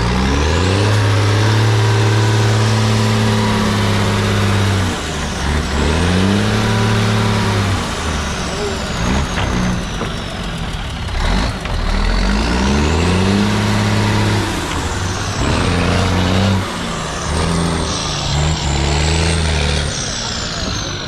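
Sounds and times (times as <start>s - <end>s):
truck engine revving: 0.0s - 21.0s
high whine: 12.8s - 21.0s.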